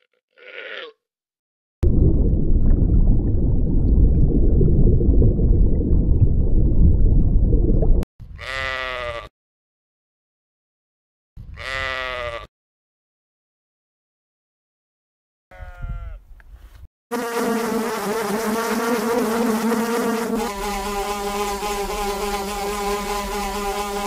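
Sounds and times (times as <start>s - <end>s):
animal bleating: 0.0s - 1.0s, 8.3s - 9.3s, 11.4s - 12.5s, 15.5s - 16.3s.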